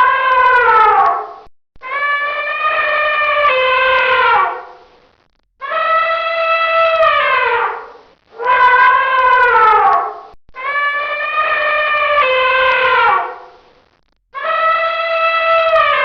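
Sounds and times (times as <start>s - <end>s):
elephant trumpeting: 5.7s - 13.5s.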